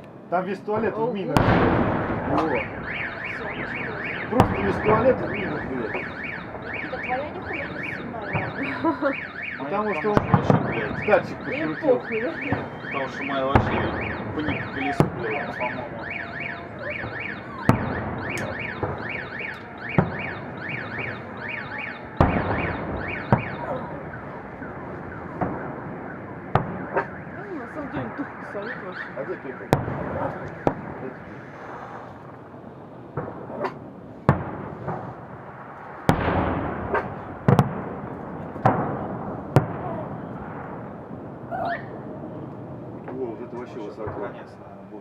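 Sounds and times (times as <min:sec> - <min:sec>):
fireworks bangs: 0:00.0 - 0:44.7
car alarm wailing: 0:02.1 - 0:32.3.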